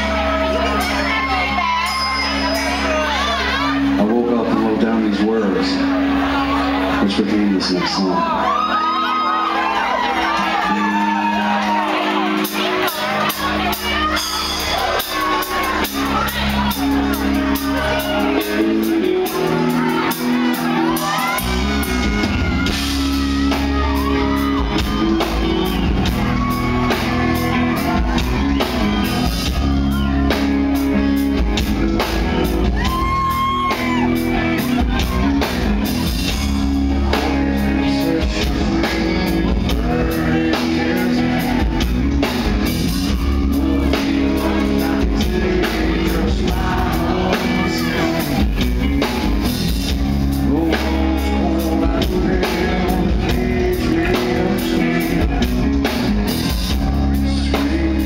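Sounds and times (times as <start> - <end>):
live rock band playing: 0.0 - 58.0
male lead vocal: 17.2 - 26.8, 36.8 - 58.0.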